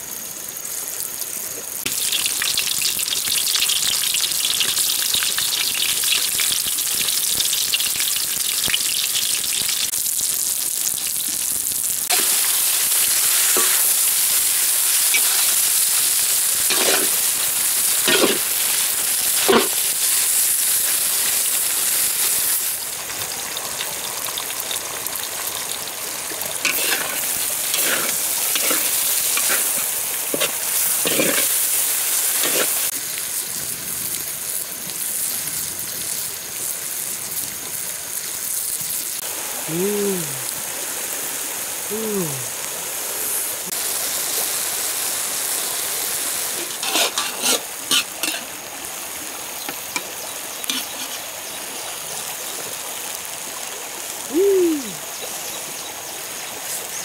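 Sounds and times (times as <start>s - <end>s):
food sizzling in a wok: 0.0s - 57.0s
metal spatula scraping a wok: 16.6s - 17.2s, 18.0s - 18.5s, 26.7s - 31.7s, 32.4s - 32.9s, 46.6s - 48.5s, 50.7s - 51.3s.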